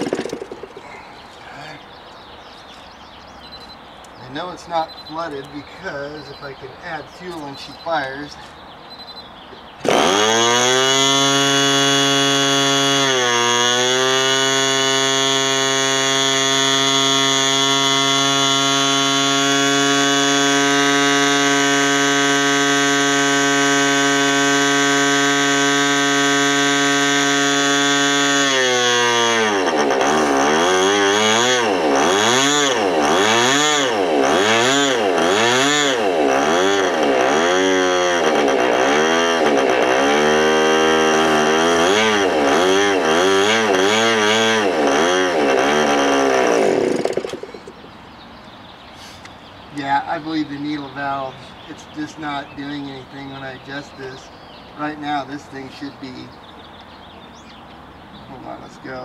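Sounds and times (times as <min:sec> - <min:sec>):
small nitro engine running: 0:00.0 - 0:01.0, 0:09.8 - 0:47.7.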